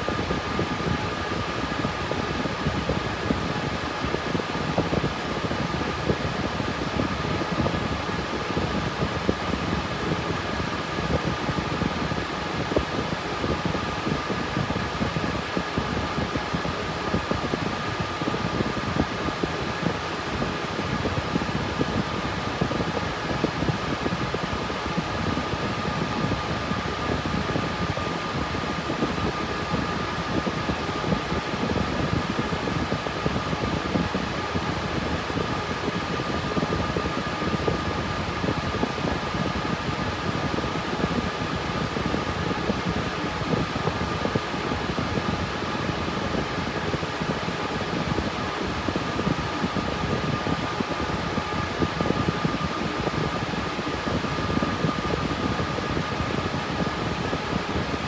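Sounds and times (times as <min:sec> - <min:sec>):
cooling fans whooshing: 0:00.0 - 0:58.0.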